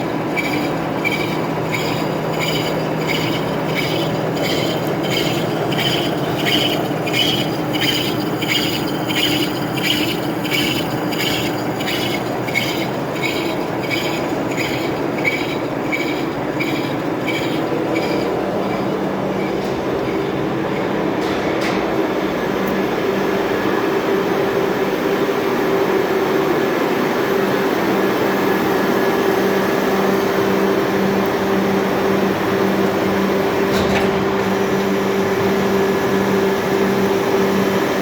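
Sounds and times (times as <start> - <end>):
lathe humming: 0.0 - 24.1, 29.5 - 38.0
metallic scraping: 0.4 - 21.8.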